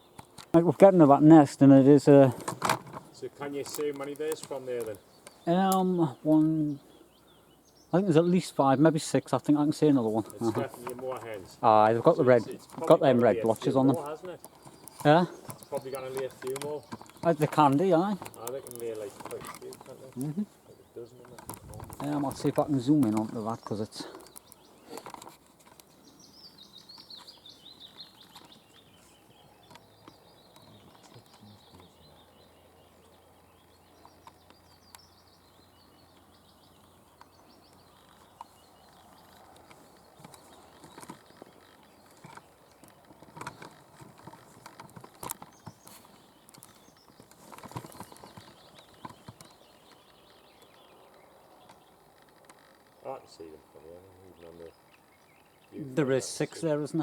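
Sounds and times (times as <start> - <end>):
faint songbird song: 0.0 - 57.0
clicks and rustles: 2.1 - 6.6, 9.0 - 26.2, 26.8 - 32.0, 36.0 - 53.4.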